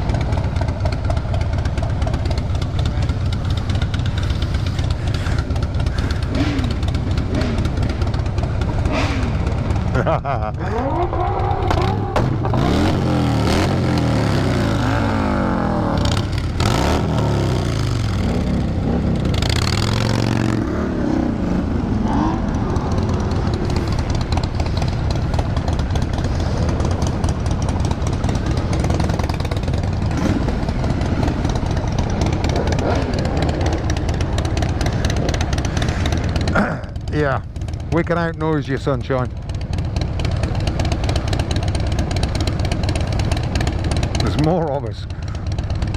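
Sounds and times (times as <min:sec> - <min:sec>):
dense engine rumble: 0:00.0 - 0:45.9
several engines revving: 0:03.7 - 0:39.3.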